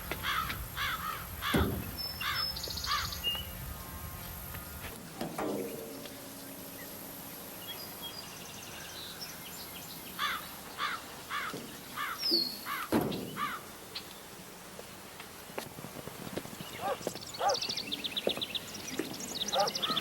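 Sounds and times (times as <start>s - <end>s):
faint outdoor background: 0.0s - 20.0s
dull thump: 1.5s - 2.0s.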